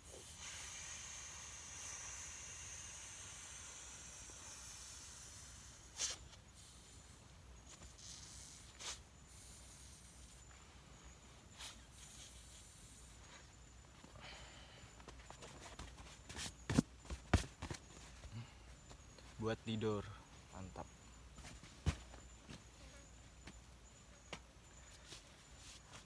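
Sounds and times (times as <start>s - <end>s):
faint high hiss: 0.0s - 15.8s.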